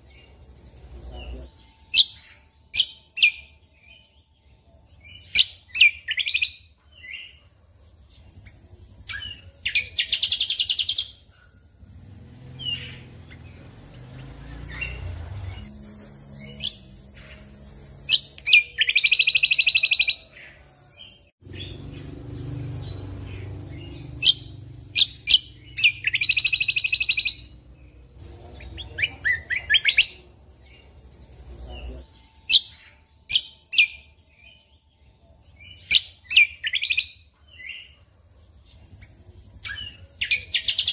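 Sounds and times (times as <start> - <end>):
bird singing with buzzy trills: 0.0 - 40.9.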